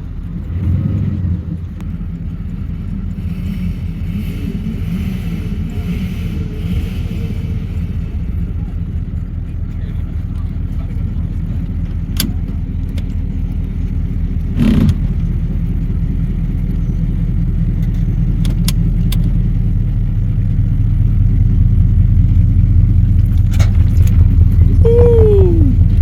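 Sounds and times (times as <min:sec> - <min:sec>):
engine rumbling at low speed: 0:00.0 - 0:26.0
brief falling cry: 0:24.9 - 0:25.8.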